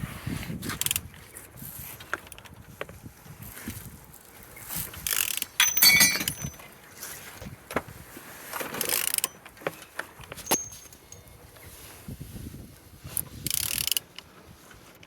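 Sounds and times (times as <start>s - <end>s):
engine crank clicking and rattling: 10.4s - 11.2s.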